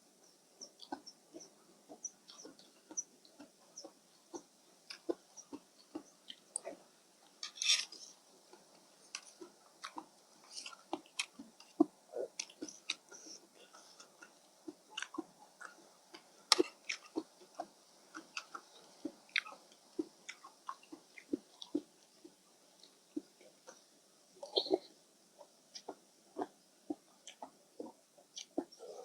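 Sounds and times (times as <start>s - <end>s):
chewing with wet mouth smacks: 0.7s - 6.8s, 7.9s - 23.8s, 25.4s - 29.0s.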